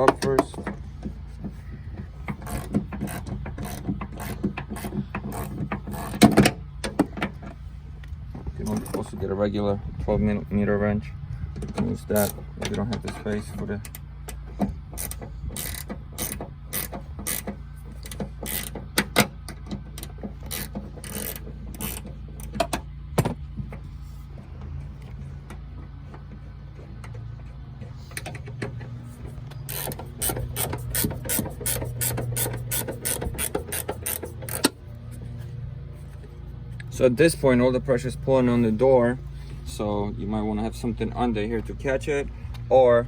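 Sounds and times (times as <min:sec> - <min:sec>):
socket ratchet clicking: 0:29.6 - 0:34.8.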